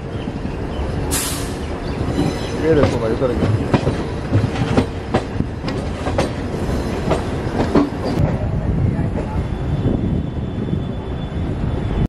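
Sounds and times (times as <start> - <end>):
train wheels clicking over rail joints: 1.1 - 8.2.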